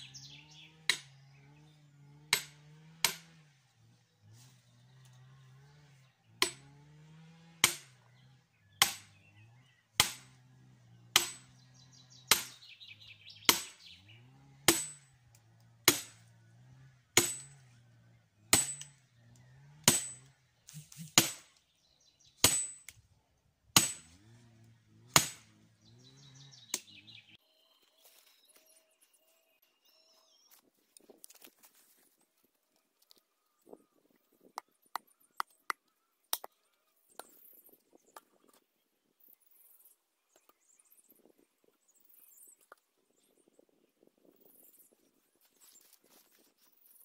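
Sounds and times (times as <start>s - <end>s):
hammer striking metal spike: 2.3s - 3.3s, 8.8s - 9.1s, 10.0s - 10.3s, 11.2s - 11.5s, 13.5s - 13.8s, 14.7s - 15.0s, 15.9s - 16.2s, 17.2s - 17.6s, 18.6s - 19.0s, 19.8s - 21.5s, 22.4s - 23.0s, 23.8s - 24.2s, 25.1s - 25.5s.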